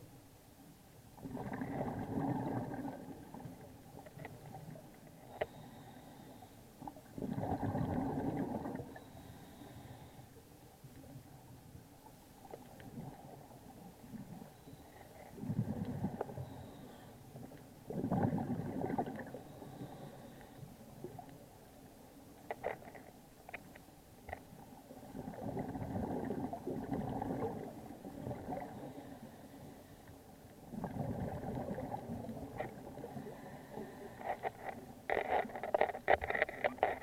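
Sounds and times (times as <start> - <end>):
underwater exhaled bubbles gurgling: 1.2 - 5.7, 6.8 - 9.7, 15.3 - 20.3, 24.7 - 29.5, 30.6 - 34.2.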